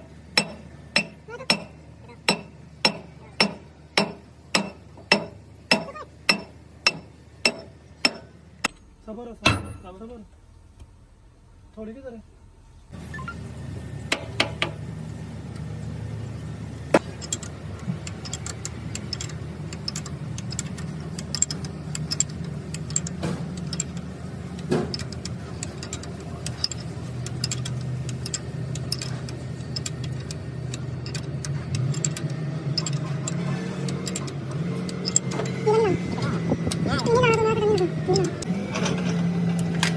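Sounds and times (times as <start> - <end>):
engine running: 12.6 - 39.9
sharp clicks and taps: 16.9 - 35.6.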